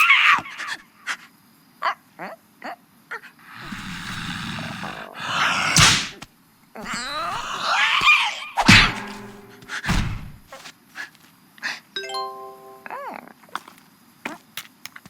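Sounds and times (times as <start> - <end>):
heavy thumps: 5.5 - 10.7.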